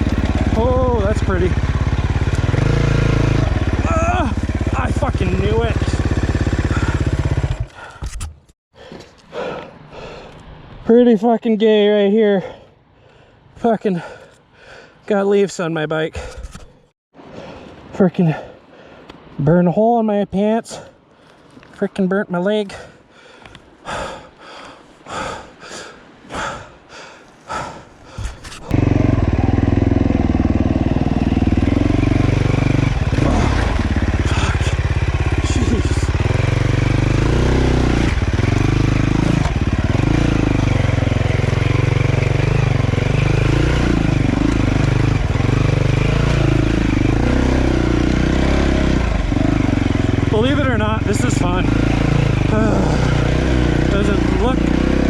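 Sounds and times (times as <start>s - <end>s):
dirt bike engine revving: 0.0s - 7.8s, 28.7s - 55.0s.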